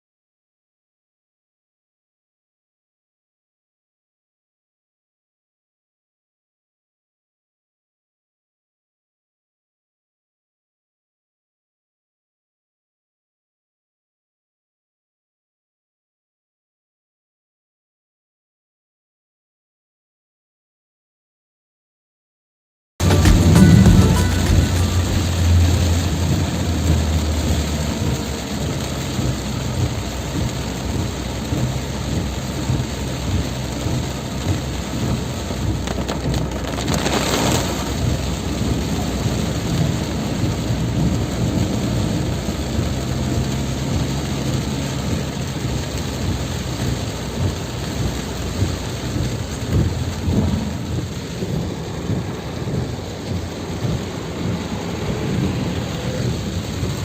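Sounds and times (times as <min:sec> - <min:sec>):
whoosh: 0:23.0 - 0:27.6
heavy rain pouring: 0:23.0 - 0:57.0
low rumble: 0:23.0 - 0:57.0.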